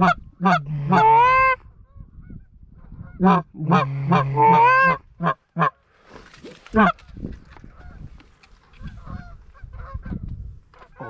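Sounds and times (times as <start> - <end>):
goose honking and clucking: 0.0 - 1.6, 3.0 - 5.8, 6.7 - 7.1, 8.9 - 10.2.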